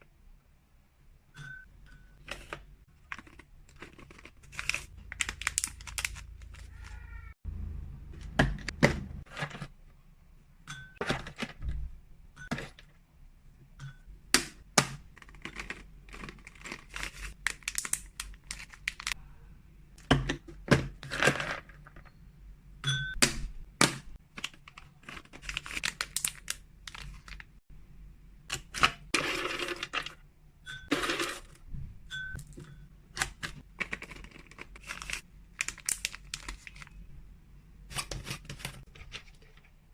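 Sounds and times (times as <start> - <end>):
plastic packaging crinkling: 3.0 - 7.2, 15.2 - 19.2, 24.2 - 27.6, 33.2 - 37.0.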